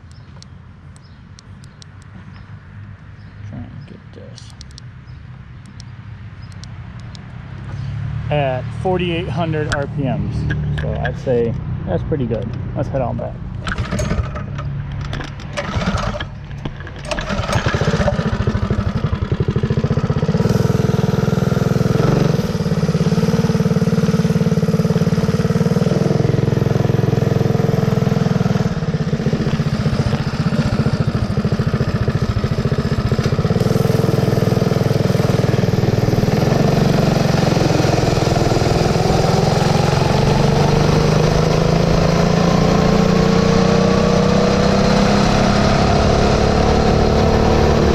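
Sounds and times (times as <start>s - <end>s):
mini bike engine running: 17.0s - 47.9s.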